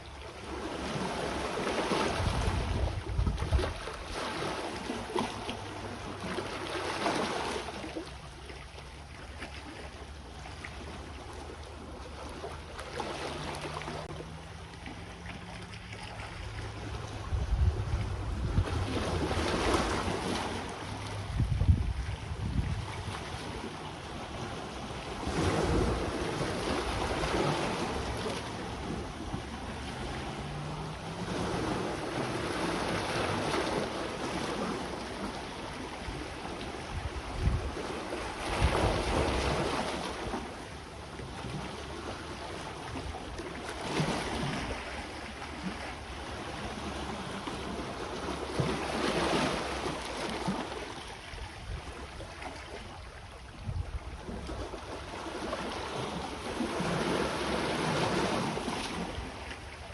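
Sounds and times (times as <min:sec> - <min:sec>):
sea waves washing ashore: 0:00.0 - 0:59.9
wind buffeting microphone: 0:01.8 - 0:04.2, 0:16.3 - 0:40.0, 0:53.5 - 0:54.9.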